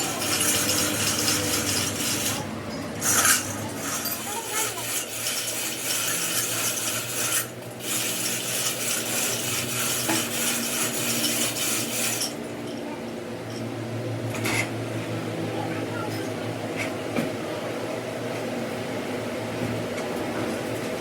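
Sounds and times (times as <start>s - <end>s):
file scraping metal: 0.0s - 12.4s
machine hum: 0.0s - 15.7s.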